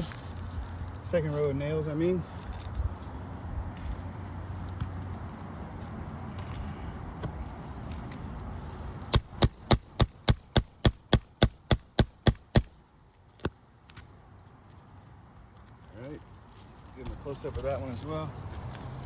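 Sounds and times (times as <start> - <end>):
hammer striking metal tool: 9.2 - 12.7.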